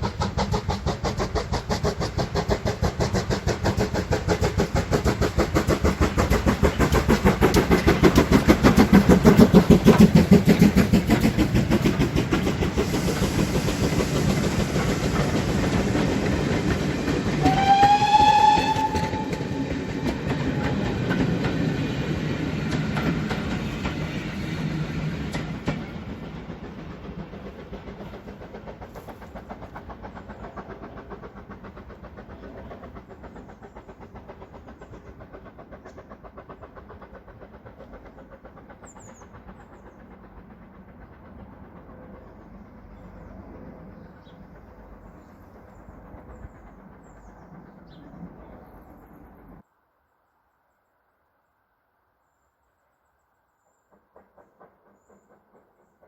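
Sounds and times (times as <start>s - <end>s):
train passing: 0.0s - 49.7s, 53.5s - 56.0s
wheels over rail joints: 0.2s - 43.1s
train whistle blast: 17.3s - 20.4s.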